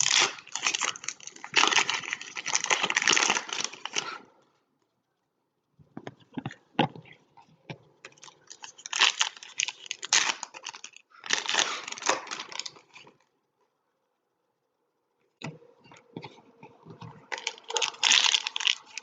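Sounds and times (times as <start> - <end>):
foil wrappers tearing and crinkling: 0.0 - 4.2, 8.2 - 13.1, 17.3 - 19.0.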